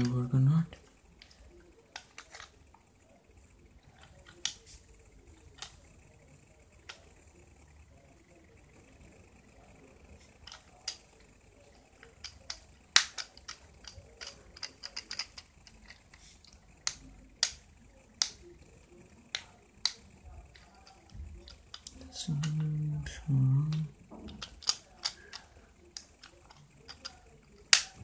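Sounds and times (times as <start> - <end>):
plastic parts clicking together: 1.2 - 2.6, 3.9 - 4.6, 10.3 - 11.2, 11.8 - 18.5, 19.2 - 22.8, 23.6 - 28.0.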